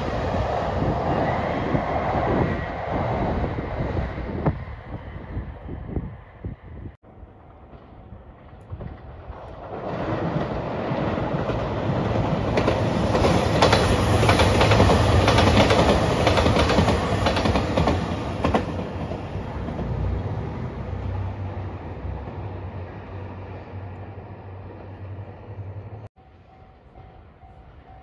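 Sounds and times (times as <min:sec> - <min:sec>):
diesel train engine drone: 0:00.0 - 0:28.0
wheels clacking over rail joints: 0:07.4 - 0:20.2.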